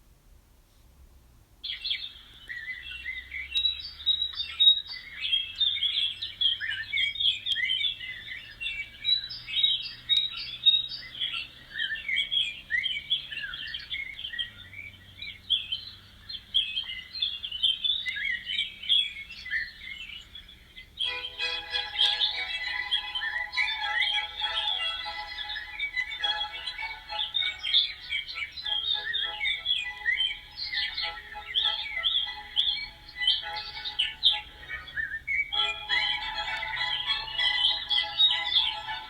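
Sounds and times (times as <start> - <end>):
many small birds chirping: 2.0 - 39.0
music: 21.0 - 39.0.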